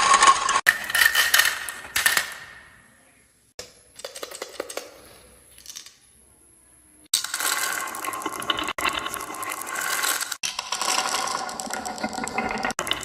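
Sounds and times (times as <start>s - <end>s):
marbles rattling down a run: 7.2s - 13.0s.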